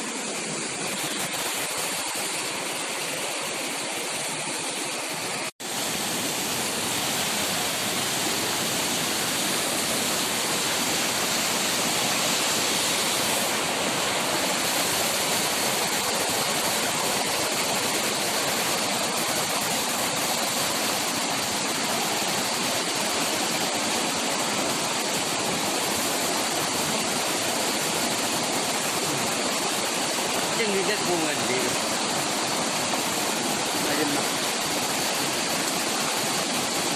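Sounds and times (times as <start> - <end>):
rushing water: 0.0 - 36.9.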